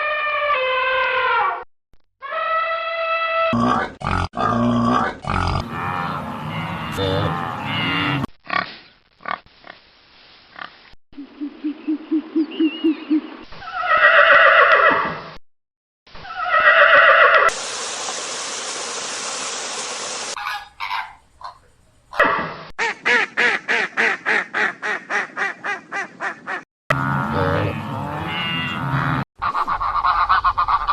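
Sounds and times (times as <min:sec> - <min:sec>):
loud drawn-out animal calls: 0:02.2 - 0:04.2, 0:04.9 - 0:09.8, 0:16.2 - 0:30.9
steady hiss: 0:17.5 - 0:20.4.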